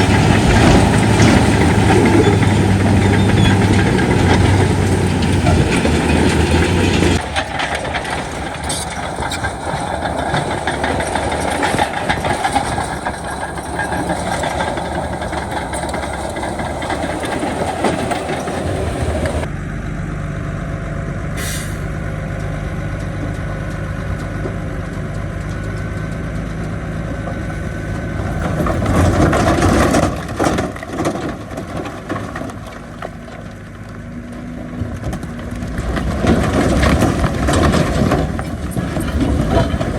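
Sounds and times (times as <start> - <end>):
heavy diesel machinery engine drone: 0.0 - 39.9.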